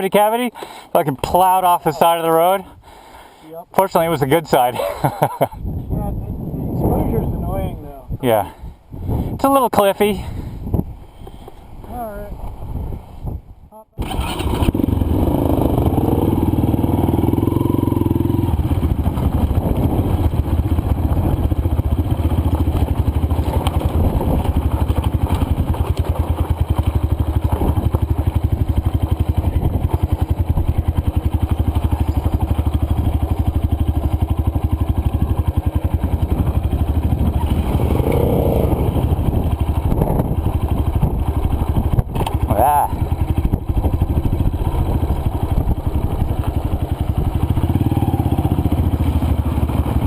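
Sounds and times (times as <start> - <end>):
dirt bike engine running: 14.0 - 50.0.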